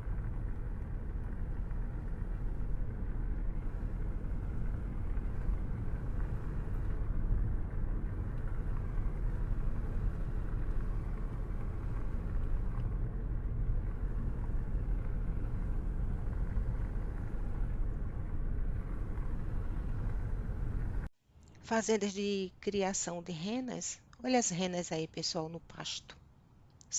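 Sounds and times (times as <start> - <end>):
car driving rumble: 0.0 - 21.1.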